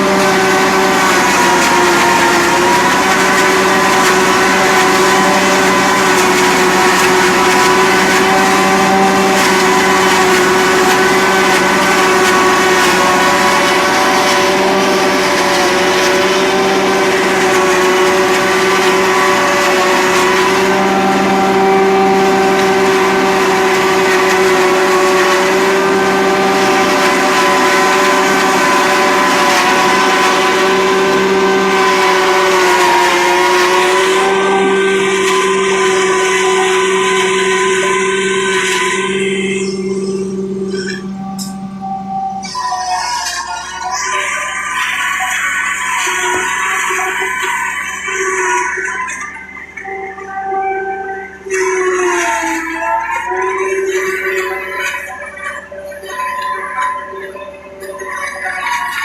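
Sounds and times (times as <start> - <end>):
farm machinery droning: 0.0 - 59.0.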